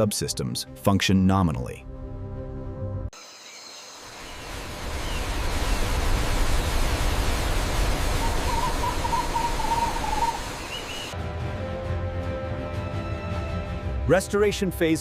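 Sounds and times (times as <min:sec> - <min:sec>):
rushing noise with deep rumble: 0:04.2 - 0:11.2
faint wavering whistle: 0:08.1 - 0:11.2.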